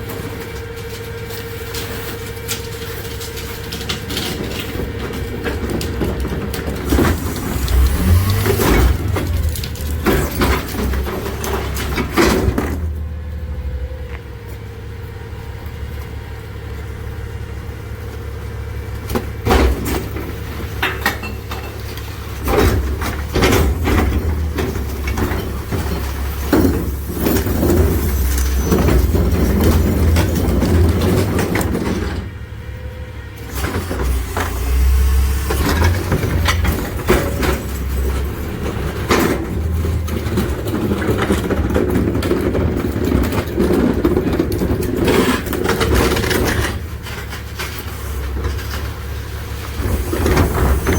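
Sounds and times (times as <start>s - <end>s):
garbage truck engine running: 0.0s - 50.9s
packer clanks and knocks: 19.4s - 32.3s.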